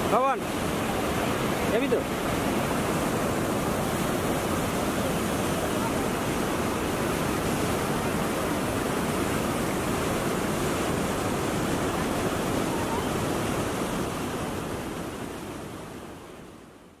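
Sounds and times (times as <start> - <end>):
waterfall roaring: 0.0 - 16.9.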